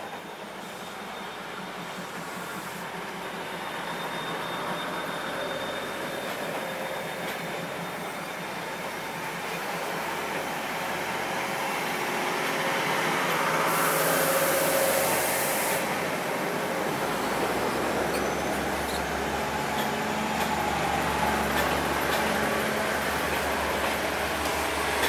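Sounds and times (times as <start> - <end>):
train running on rails: 0.0 - 25.0
hiss of air: 13.3 - 16.2.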